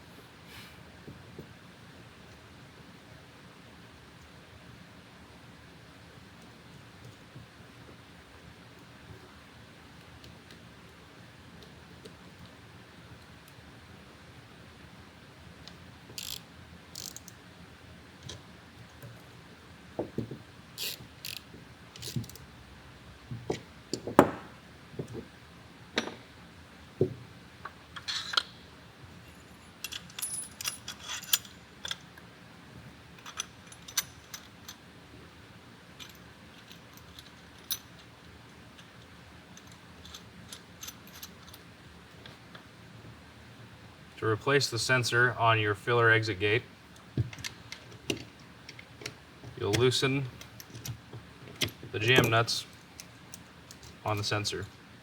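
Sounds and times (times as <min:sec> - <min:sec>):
metallic clicks and knocks of tools: 0:29.8 - 0:32.1.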